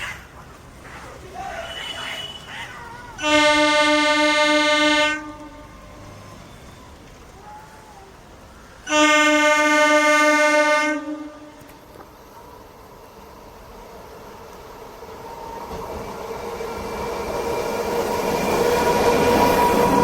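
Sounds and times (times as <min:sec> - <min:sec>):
train air horn blasts: 0:03.2 - 0:06.0, 0:08.9 - 0:11.7.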